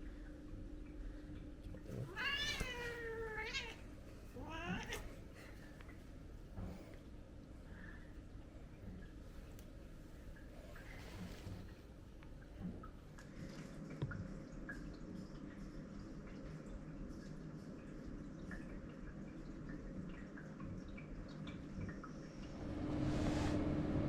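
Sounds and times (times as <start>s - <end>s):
water dripping: 0.0s - 6.7s
rushing noise with steady hum: 22.4s - 24.0s.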